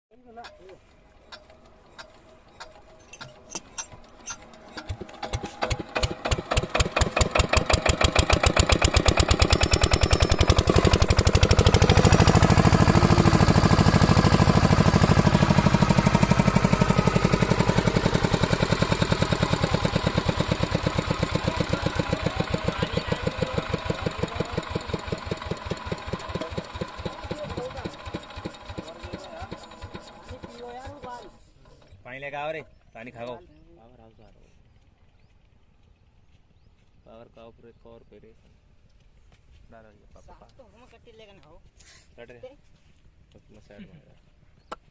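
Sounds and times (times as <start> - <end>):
diesel pump engine chugging: 0.8 - 32.0.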